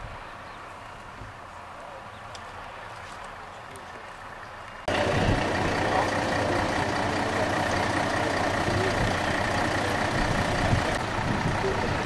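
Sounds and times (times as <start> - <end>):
heavy engine running: 4.0 - 12.0.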